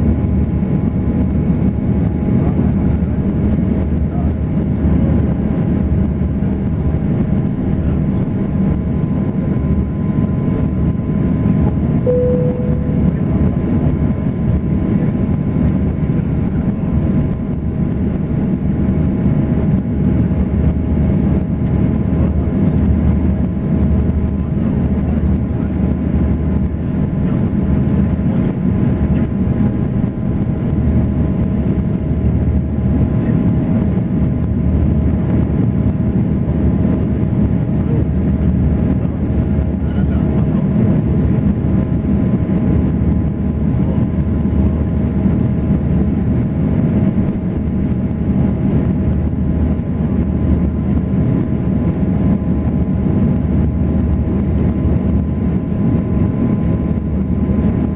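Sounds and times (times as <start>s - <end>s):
airliner cabin engine roar: 0.0s - 57.9s
short beep: 12.1s - 13.6s.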